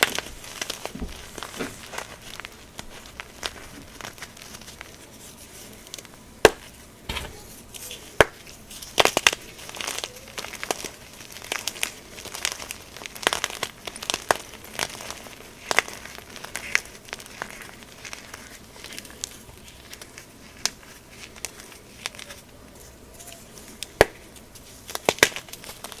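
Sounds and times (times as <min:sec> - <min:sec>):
chalk being crushed: 0:06.4 - 0:22.4.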